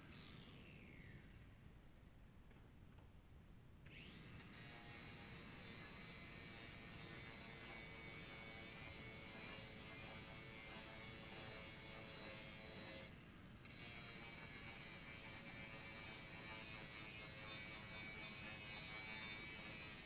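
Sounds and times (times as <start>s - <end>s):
angle grinder grinding metal: 4.5s - 13.1s, 13.7s - 20.0s.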